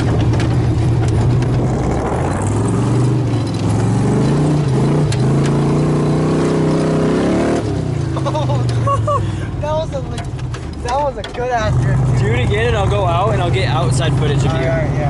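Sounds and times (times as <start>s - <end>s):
engine revving hard: 0.8s - 8.2s, 11.6s - 15.0s.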